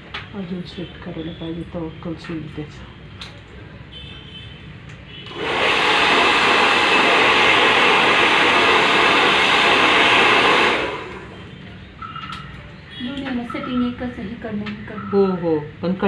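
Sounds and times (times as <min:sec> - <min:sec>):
hair dryer blowing: 0:05.3 - 0:11.4.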